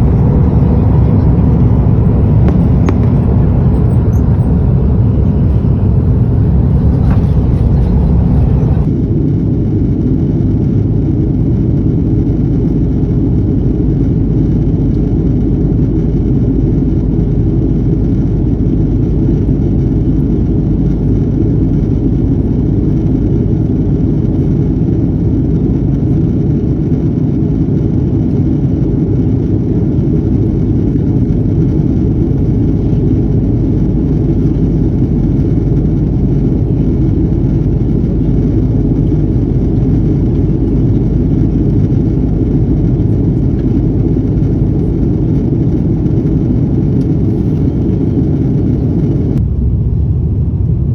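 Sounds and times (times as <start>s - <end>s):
airliner engines and airflow rumble: 0.0s - 50.9s.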